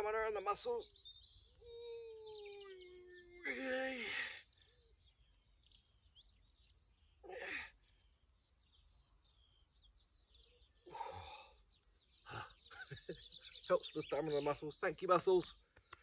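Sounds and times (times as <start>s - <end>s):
faint birdsong: 0.0s - 16.0s
man grunting with effort: 7.2s - 7.7s.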